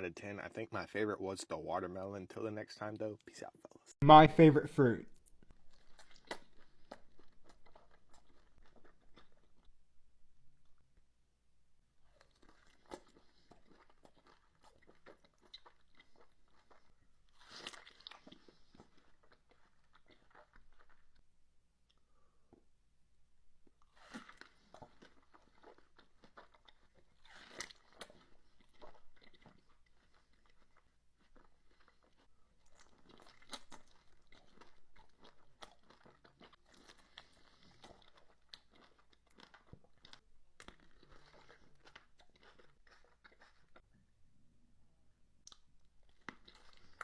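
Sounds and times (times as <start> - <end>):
person chewing crisp fruit: 5.2 - 10.8, 12.0 - 21.3, 23.6 - 43.9, 45.4 - 47.0.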